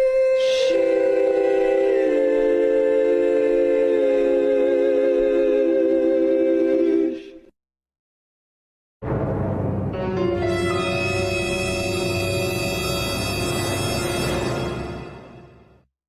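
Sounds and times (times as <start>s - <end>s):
voices singing a sustained chord: 0.0s - 7.5s.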